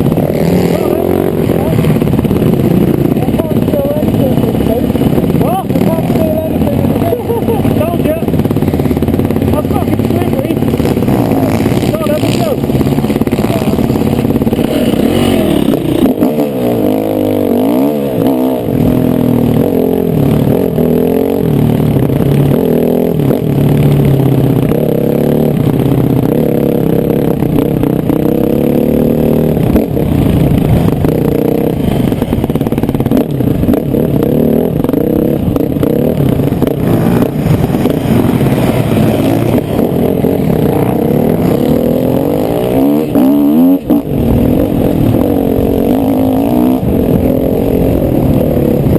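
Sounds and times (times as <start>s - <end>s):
motocross bike engine revving: 0.0s - 48.9s.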